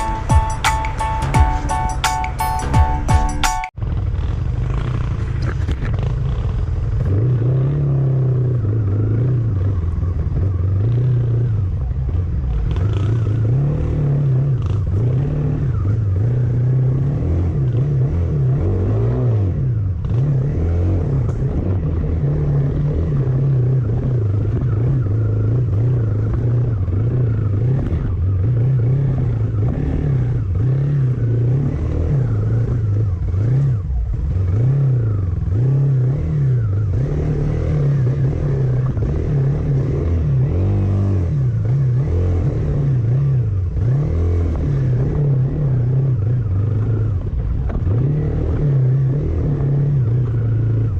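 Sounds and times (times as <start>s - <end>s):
engine revving: 0.0s - 50.9s.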